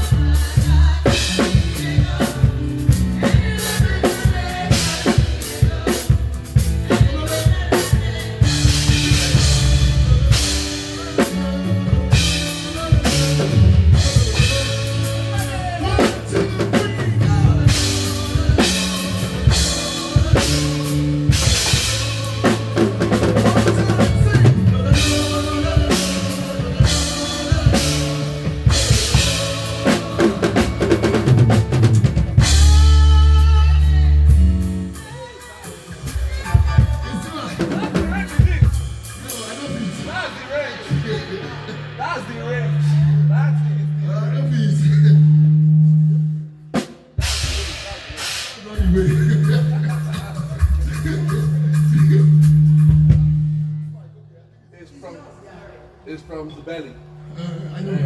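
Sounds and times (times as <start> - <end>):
live band playing: 0.0 - 54.3
cymbal crashes: 38.8 - 54.1.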